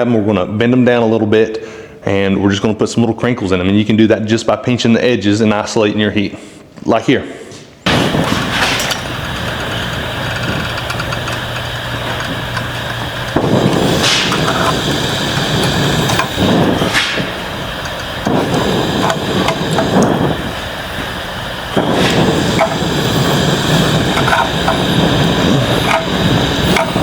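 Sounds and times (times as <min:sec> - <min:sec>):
forge burner roaring: 0:07.9 - 0:27.0.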